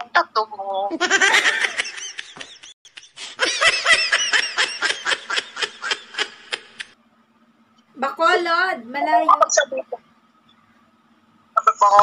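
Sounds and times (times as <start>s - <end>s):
woman laughing hard: 0.9s - 6.9s.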